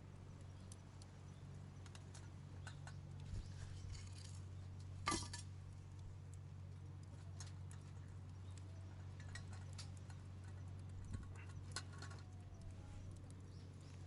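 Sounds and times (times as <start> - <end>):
steady low hum: 0.0 - 14.0
light metallic clicks and clinks: 1.8 - 5.5, 7.0 - 13.5.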